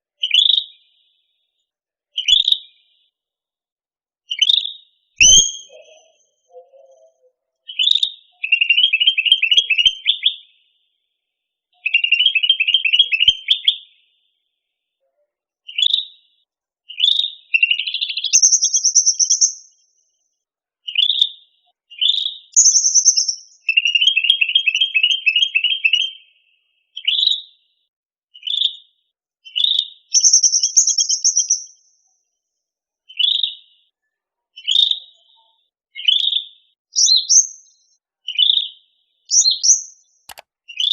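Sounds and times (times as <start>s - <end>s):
songbird singing chattering trills: 4.3s - 7.1s, 17.0s - 19.7s, 22.0s - 26.0s, 29.6s - 31.8s.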